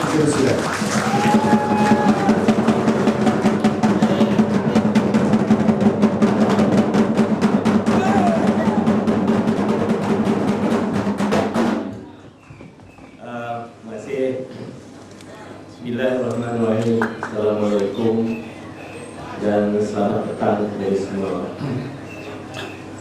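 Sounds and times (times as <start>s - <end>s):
fast drumming: 0.0s - 12.0s.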